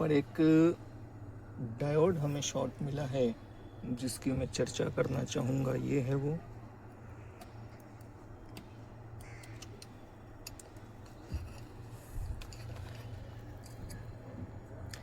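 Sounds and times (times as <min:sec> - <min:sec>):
steady low hum: 0:00.0 - 0:15.0
small tools clicking and tapping: 0:07.4 - 0:15.0.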